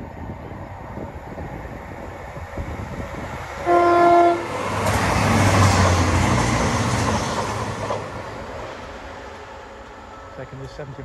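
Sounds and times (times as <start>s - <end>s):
train passing at speed: 0.0s - 11.0s
train horn blast: 3.6s - 4.6s.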